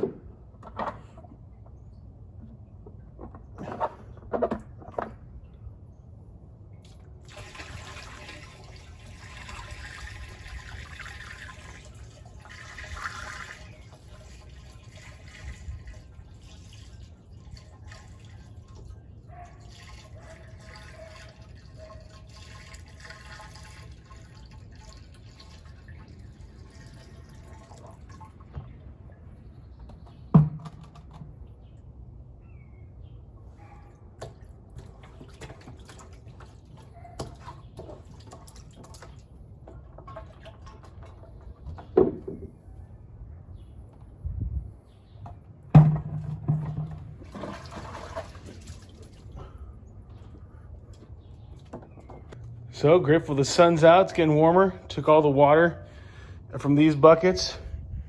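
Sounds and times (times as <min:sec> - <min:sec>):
water trickling and dripping: 0:06.7 - 0:29.1, 0:34.2 - 0:41.9, 0:46.0 - 0:51.7
water pouring into plastic barrel: 0:06.8 - 0:28.6, 0:34.7 - 0:41.8, 0:45.8 - 0:49.6.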